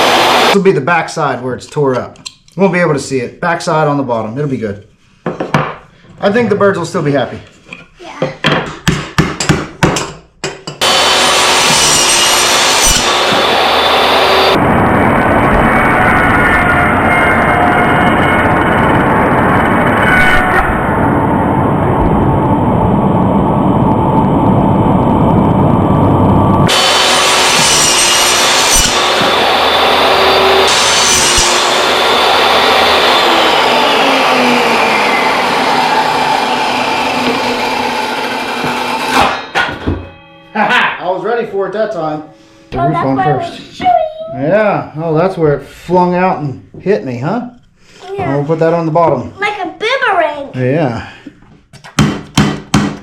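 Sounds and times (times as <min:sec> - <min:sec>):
power saw cutting wood: 0:00.0 - 0:00.6, 0:10.8 - 0:19.0, 0:26.6 - 0:39.7
knocks on wood: 0:08.3 - 0:10.2, 0:51.9 - 0:53.0.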